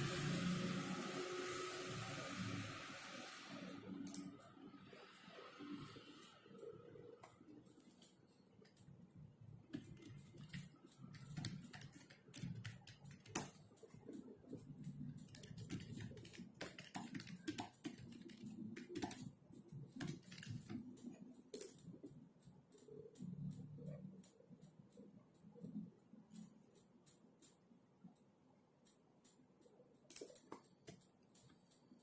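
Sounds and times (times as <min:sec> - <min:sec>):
keyboard typing clicks: 0:03.6 - 0:32.0.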